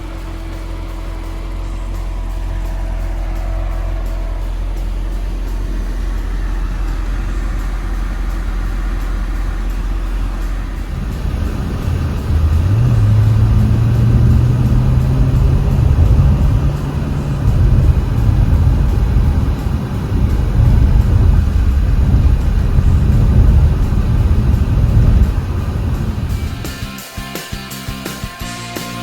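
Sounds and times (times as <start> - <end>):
car engine running: 0.0 - 27.0.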